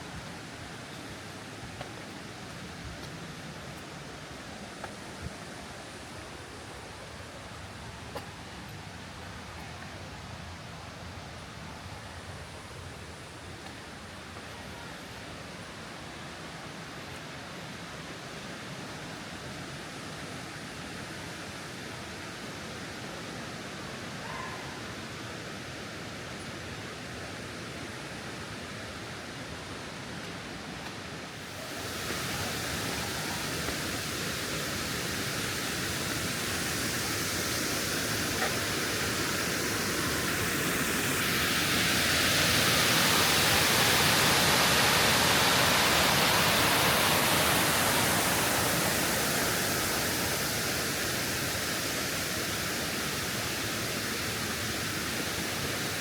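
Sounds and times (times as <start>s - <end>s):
waterfall rushing: 31.4s - 56.0s.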